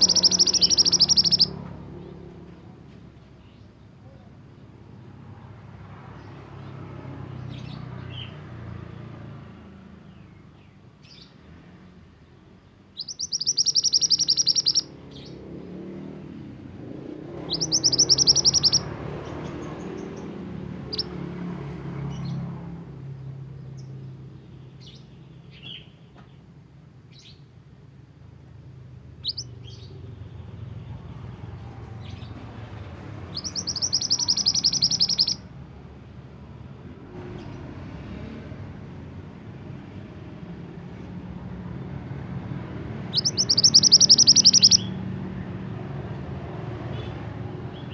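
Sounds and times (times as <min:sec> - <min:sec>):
bird chirps and whistled notes: 0:00.0 - 0:01.6, 0:13.0 - 0:15.4, 0:17.3 - 0:18.9, 0:20.9 - 0:21.1, 0:29.2 - 0:29.9, 0:33.3 - 0:35.5, 0:43.0 - 0:45.0
songbird rattling trills: 0:00.0 - 0:01.6, 0:13.0 - 0:15.3, 0:17.4 - 0:20.3, 0:33.3 - 0:35.4, 0:43.0 - 0:44.9.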